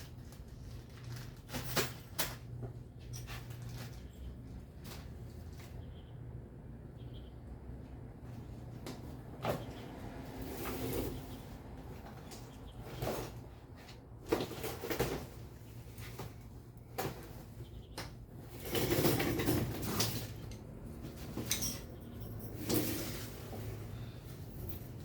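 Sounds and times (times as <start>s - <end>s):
objects knocking and clattering: 14.2s - 23.3s
objects scraping: 18.4s - 25.0s.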